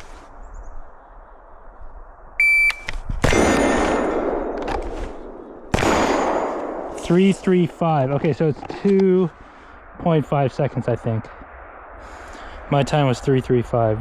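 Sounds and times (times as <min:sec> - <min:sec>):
shot timer beep: 0:02.4 - 0:03.0
rifle shot: 0:02.6 - 0:07.9
pistol shot: 0:02.7 - 0:07.7
gunshot echo: 0:03.2 - 0:08.2.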